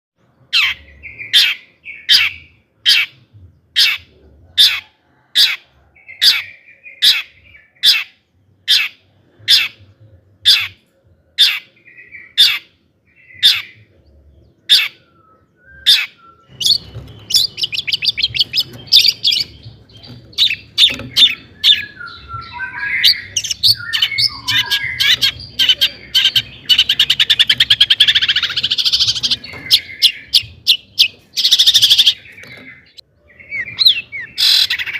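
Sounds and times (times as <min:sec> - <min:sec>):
bird song warbling chatter: 0:00.2 - 0:34.9
bird calling sharp notes: 0:14.7 - 0:34.9.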